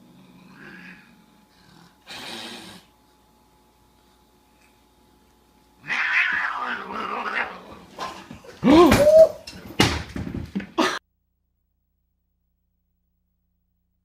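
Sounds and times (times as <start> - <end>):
animal hissing: 1.8 - 2.9
animal cry: 5.8 - 7.8.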